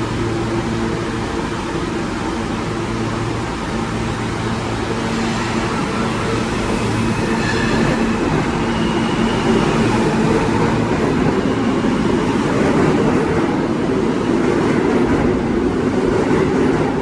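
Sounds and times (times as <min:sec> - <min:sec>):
train wheels rumbling on rail: 0:00.0 - 0:17.0
faint high wheel squeals: 0:05.0 - 0:10.6.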